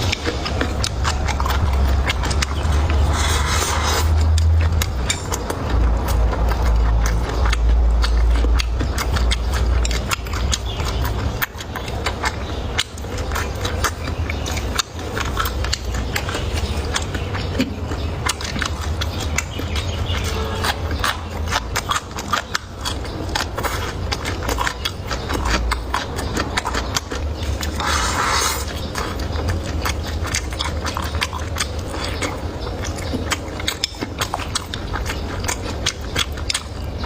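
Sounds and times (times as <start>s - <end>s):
chewing and mouth sounds: 0.0s - 37.0s.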